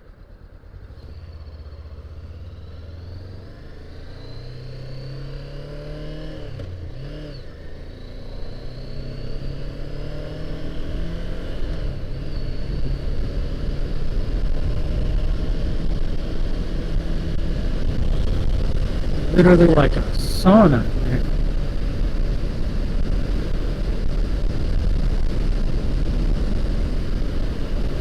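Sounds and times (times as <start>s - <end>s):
motorcycle engine accelerating: 0.2s - 19.5s.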